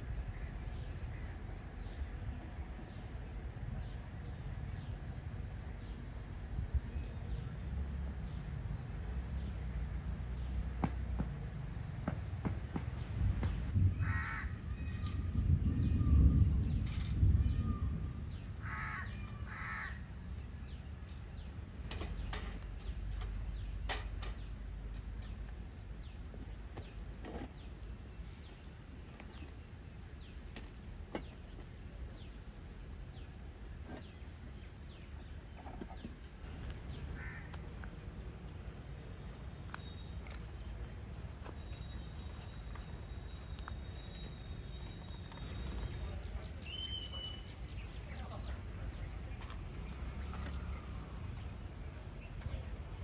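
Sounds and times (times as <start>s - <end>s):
low rumble: 13.0s - 19.4s
bird harsh calls: 14.0s - 15.1s, 17.6s - 20.1s.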